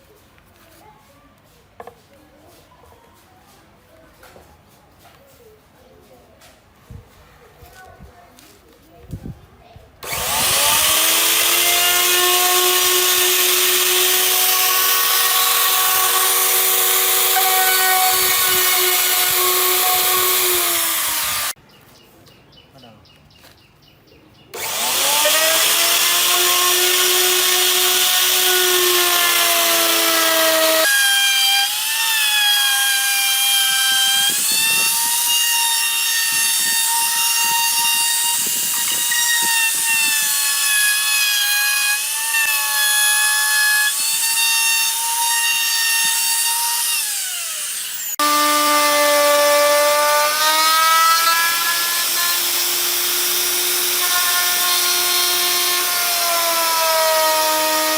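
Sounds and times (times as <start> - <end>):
power tool motor whining: 10.0 - 21.6, 24.6 - 57.9.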